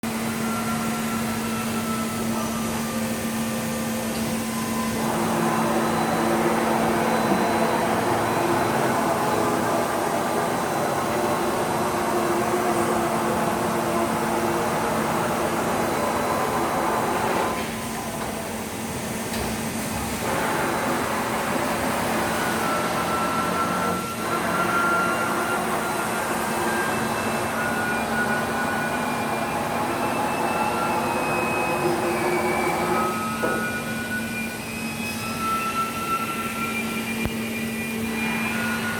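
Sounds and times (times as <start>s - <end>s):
lathe machine hum: 0.0s - 38.9s
thin high whine: 0.2s - 18.2s, 22.4s - 38.9s
machine tool whirring: 4.1s - 18.5s.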